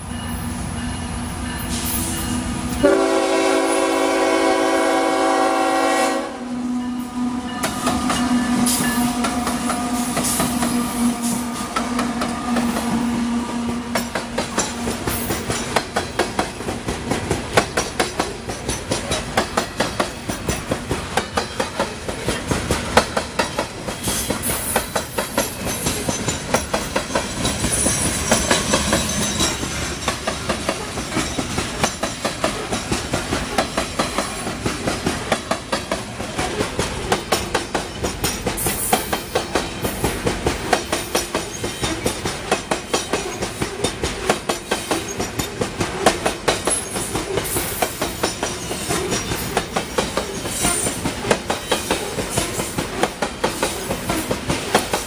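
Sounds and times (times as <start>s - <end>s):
locomotives droning past: 0.0s - 16.8s
locomotive air horn blast: 2.8s - 14.0s
wheels clicking over rail joints: 11.6s - 55.0s.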